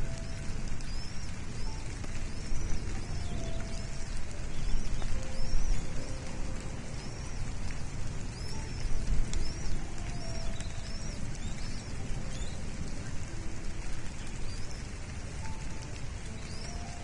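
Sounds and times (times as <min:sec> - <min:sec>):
bird high chirps: 0:00.0 - 0:13.2, 0:13.8 - 0:17.0
steady low rumble: 0:00.0 - 0:17.0.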